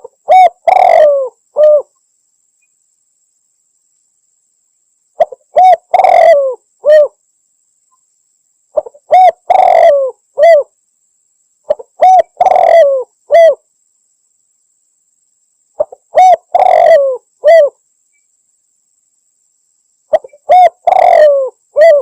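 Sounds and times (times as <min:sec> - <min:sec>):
dove cooing: 0:00.0 - 0:02.0, 0:05.2 - 0:07.2, 0:08.8 - 0:10.7, 0:11.7 - 0:13.6, 0:15.8 - 0:17.8, 0:20.1 - 0:22.0.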